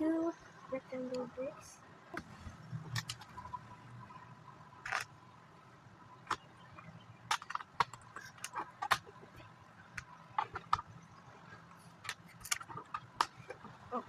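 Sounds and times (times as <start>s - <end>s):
plastic bricks clicking: 7.3s - 9.2s, 12.0s - 13.6s.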